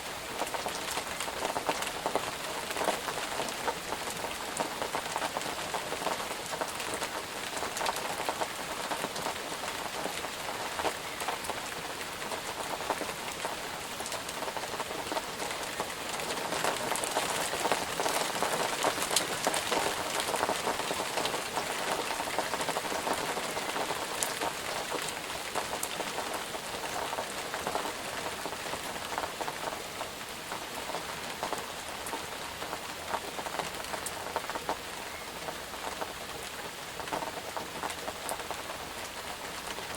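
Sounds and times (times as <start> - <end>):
rain pattering on a surface: 0.0 - 39.9.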